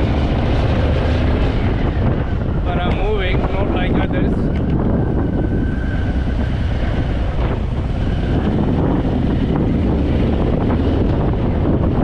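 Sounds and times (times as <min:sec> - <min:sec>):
motorcycle engine running: 0:00.0 - 0:03.8
wind buffeting microphone: 0:00.0 - 0:12.0.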